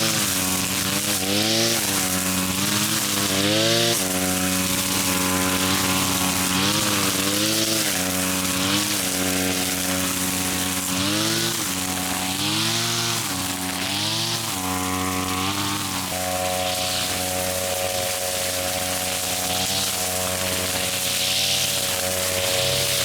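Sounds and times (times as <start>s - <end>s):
grass cutter engine bogging: 0.0s - 23.0s.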